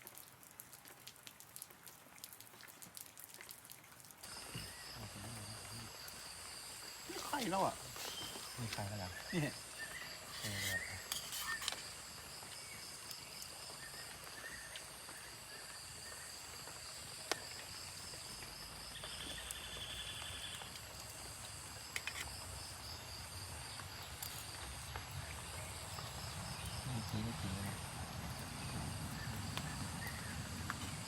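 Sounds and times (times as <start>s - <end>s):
insect buzzy trill: 4.2s - 24.8s
insects chirring chorus: 4.2s - 31.0s.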